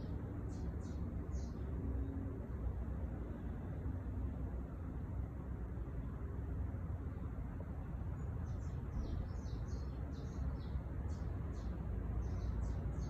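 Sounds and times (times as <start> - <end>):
songbird chirping: 0.0 - 2.2, 8.1 - 13.0.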